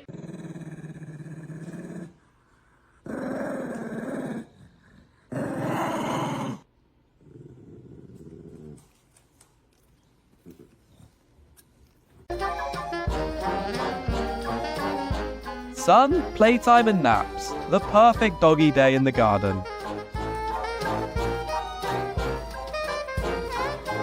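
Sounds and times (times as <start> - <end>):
dog growling: 0.0 - 9.0.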